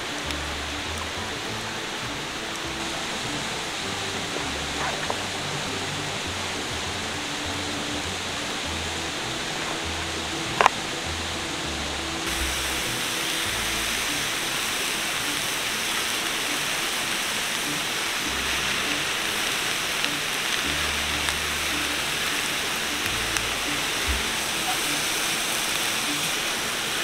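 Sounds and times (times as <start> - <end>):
food sizzling in a skillet: 12.2 - 27.0.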